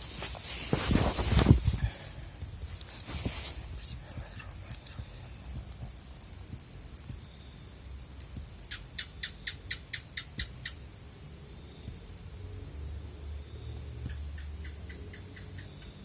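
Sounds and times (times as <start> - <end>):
lower insect sharp chirps: 4.2 - 11.2.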